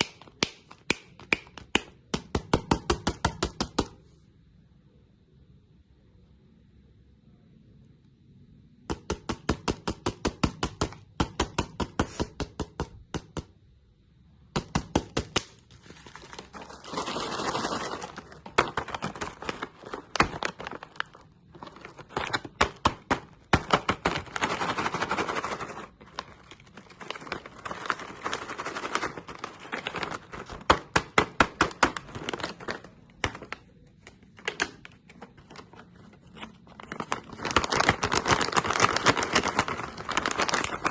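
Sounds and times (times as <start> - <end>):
crunchy candy being crunched: 15.4 - 40.9.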